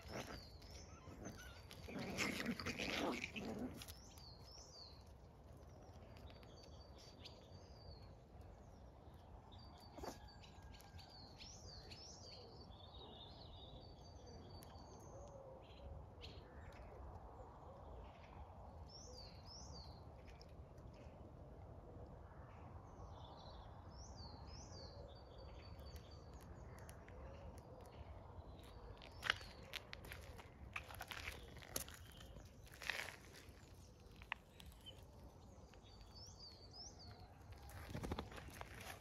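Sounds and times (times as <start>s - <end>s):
faint birdsong chirps: 0.0s - 21.4s, 22.1s - 39.0s.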